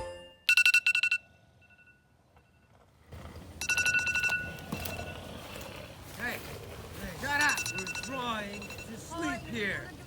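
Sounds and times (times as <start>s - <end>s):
alarm clock beeping: 0.0s - 2.7s, 3.6s - 5.4s, 7.3s - 9.5s.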